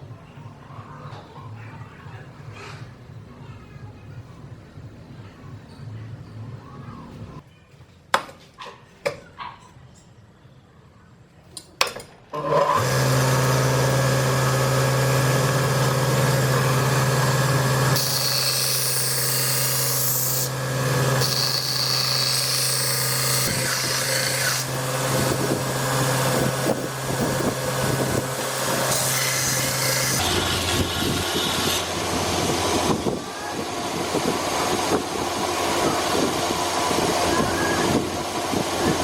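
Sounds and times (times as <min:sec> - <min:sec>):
electric grinder grinding steel: 0:12.4 - 0:39.0.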